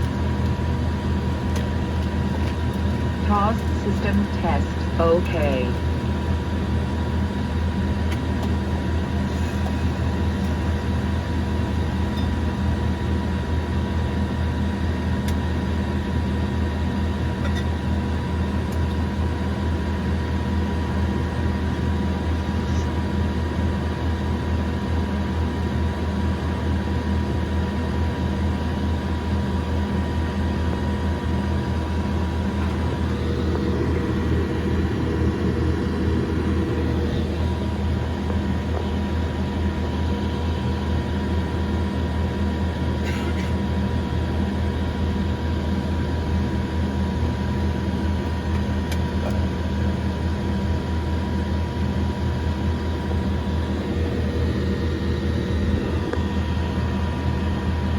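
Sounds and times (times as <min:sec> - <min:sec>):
turboprop engine drone inside cabin: 0:00.0 - 0:57.9.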